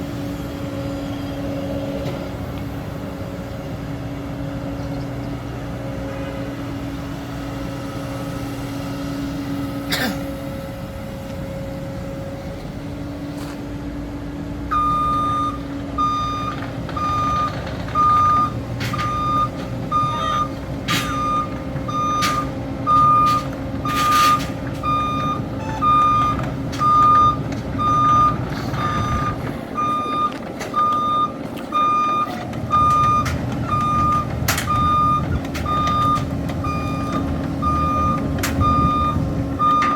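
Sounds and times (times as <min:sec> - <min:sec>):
excavator diesel engine running: 0:00.0 - 0:39.9
travel alarm beeping: 0:14.7 - 0:39.9.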